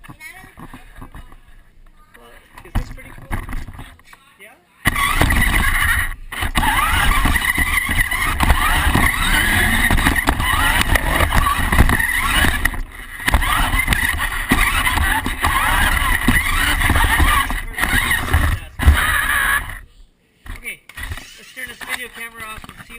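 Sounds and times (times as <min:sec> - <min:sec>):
tyres rumbling over ground: 0:04.9 - 0:19.8
toy truck motor whining and revving: 0:04.9 - 0:19.9, 0:20.5 - 0:22.8.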